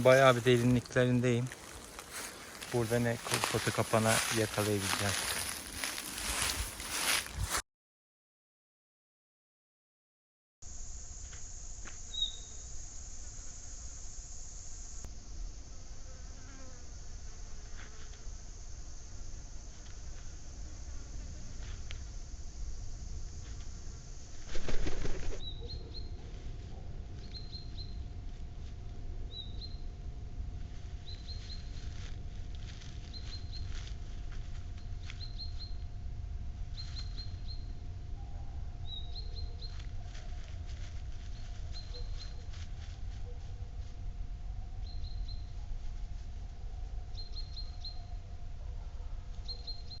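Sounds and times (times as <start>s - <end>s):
bird wings flapping: 24.4s - 25.5s
steady low rumble: 27.9s - 38.8s.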